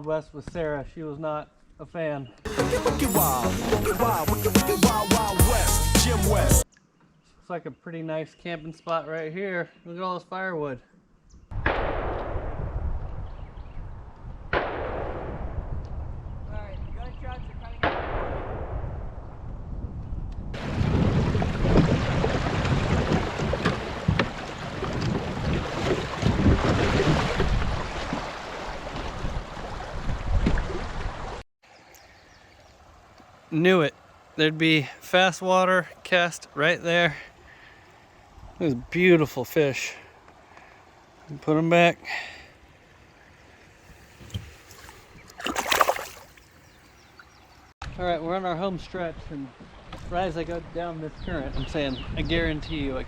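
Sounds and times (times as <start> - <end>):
faint river background: 0.0 - 12.1, 20.6 - 53.0
wind buffeting the microphone: 11.5 - 17.8, 18.6 - 31.4, 48.8 - 53.0
water rushing around a kayak: 20.6 - 31.4, 40.5 - 47.4.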